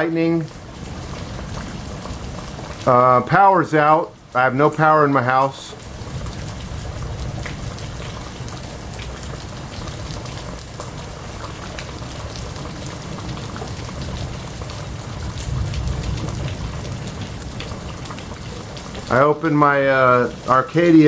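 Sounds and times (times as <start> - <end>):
heavy rain downpour: 0.0 - 21.0.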